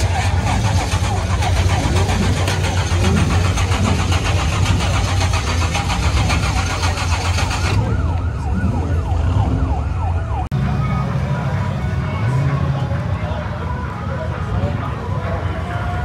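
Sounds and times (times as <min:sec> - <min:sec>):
engine idling loudly: 0:00.0 - 0:09.8
siren-like wail: 0:06.0 - 0:16.0.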